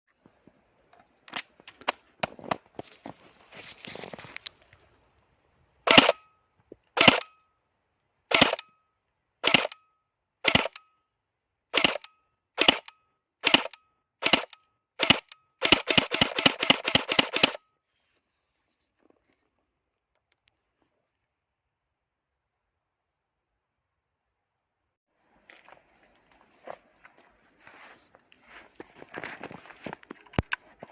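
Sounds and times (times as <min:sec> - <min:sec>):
rustle: 0:01.3 - 0:05.3, 0:25.2 - 0:30.9
airsoft shotgun shots: 0:05.9 - 0:06.2, 0:07.0 - 0:07.3, 0:08.3 - 0:08.6, 0:09.4 - 0:09.8, 0:10.4 - 0:10.8, 0:11.8 - 0:17.6
full-auto airsoft burst: 0:05.9 - 0:06.2, 0:07.0 - 0:07.3, 0:08.3 - 0:08.6, 0:09.4 - 0:09.8, 0:10.4 - 0:10.8, 0:11.7 - 0:17.6.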